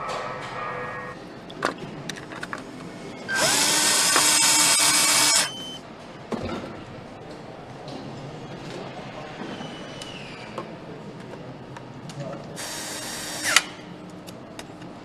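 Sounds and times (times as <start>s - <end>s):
power tool whining: 3.3s - 5.5s.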